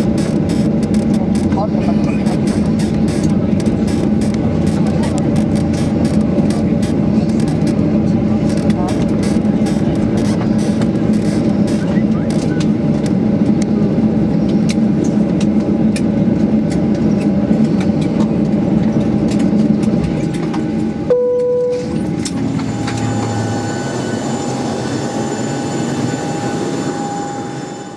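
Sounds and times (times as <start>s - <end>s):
airplane cabin rumble: 0.0s - 27.9s
jet whine with high tone: 20.8s - 27.9s.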